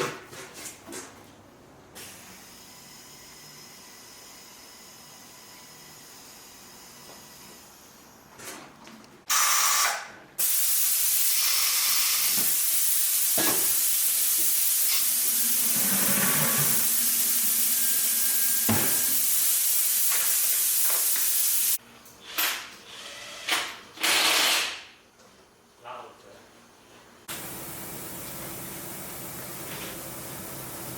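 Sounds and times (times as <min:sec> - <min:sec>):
compressed air hissing from air gun: 0:09.3 - 0:21.8.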